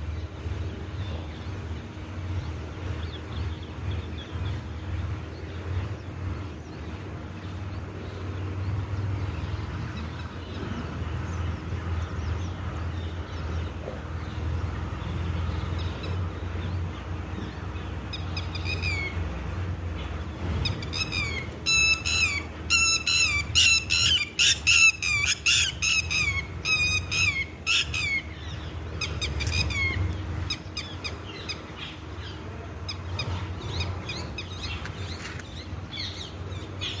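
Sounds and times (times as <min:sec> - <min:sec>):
birds chirping: 0:00.0 - 0:37.0
steady low rumble: 0:00.0 - 0:37.0.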